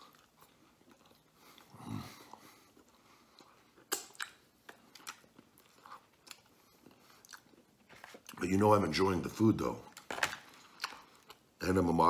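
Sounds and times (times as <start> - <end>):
low hum from closed mouth: 0.0 - 4.9
man chewing with lip smacks: 0.0 - 8.4, 9.9 - 11.5.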